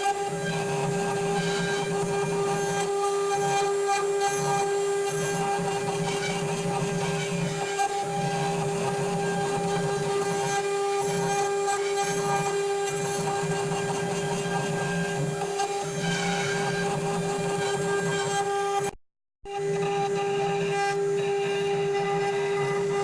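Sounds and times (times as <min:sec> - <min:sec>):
router spindle whining: 0:00.0 - 0:23.0.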